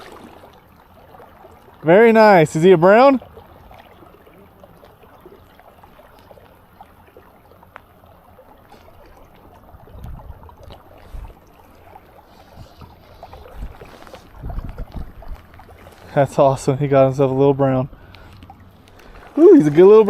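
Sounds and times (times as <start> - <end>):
river water rushing: 0.0 - 0.6, 15.3 - 20.0.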